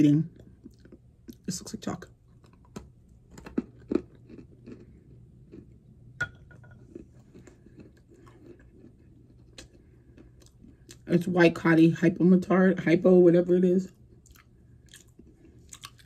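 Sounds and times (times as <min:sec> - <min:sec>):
person chewing crunchy clay: 0:00.3 - 0:01.5, 0:02.2 - 0:05.9, 0:06.7 - 0:11.1, 0:13.9 - 0:16.0.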